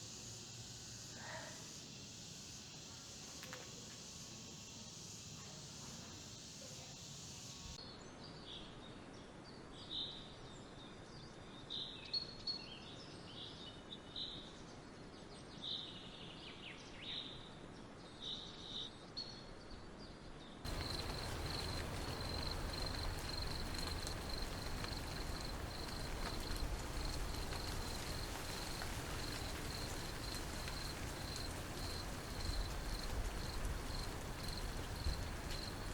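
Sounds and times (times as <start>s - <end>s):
pulsing insect trill: 20.7s - 35.9s.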